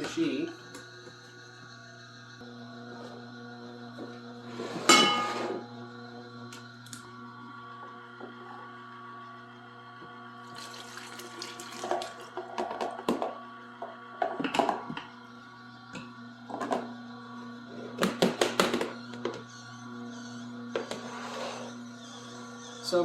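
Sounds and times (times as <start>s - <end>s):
juicer motor humming: 0.0s - 23.0s
liquid splashing: 10.5s - 12.3s.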